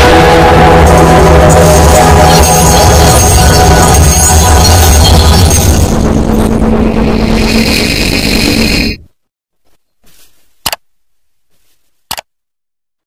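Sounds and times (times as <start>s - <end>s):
loud electronic music: 0.0s - 9.0s.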